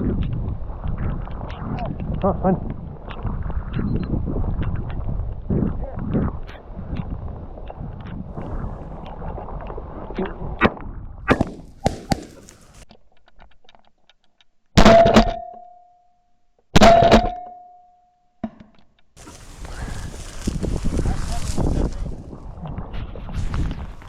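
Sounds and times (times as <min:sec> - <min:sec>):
rustling: 0:11.3 - 0:12.8, 0:19.2 - 0:22.5
shotgun shots: 0:11.3 - 0:12.8.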